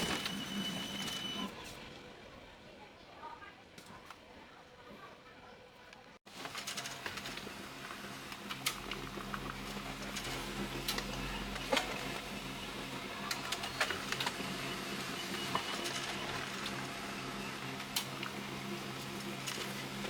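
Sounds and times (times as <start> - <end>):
paper feed clicks: 6.3 - 20.0
laser printer motor hum: 7.2 - 20.0.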